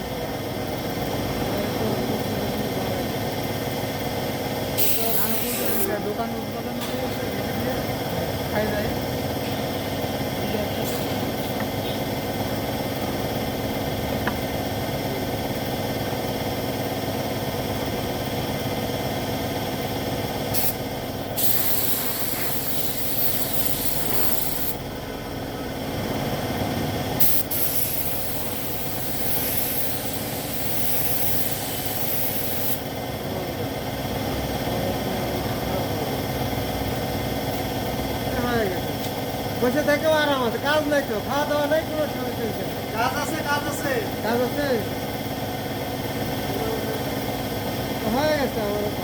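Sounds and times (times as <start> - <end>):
motor hum: 0.0 - 34.6
paint spray gun hissing: 4.6 - 5.9, 20.4 - 24.9, 27.2 - 32.9.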